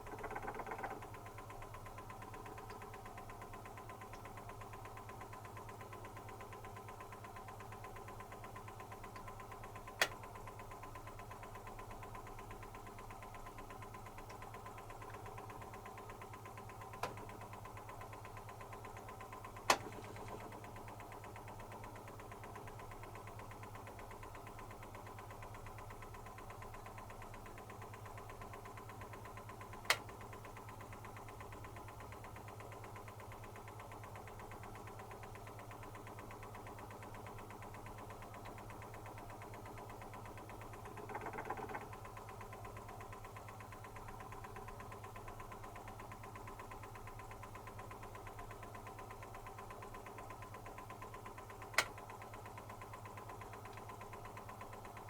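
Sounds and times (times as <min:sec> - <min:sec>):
washing machine humming: 0:12.5 - 0:24.2
sharp click: 0:51.8 - 0:52.0.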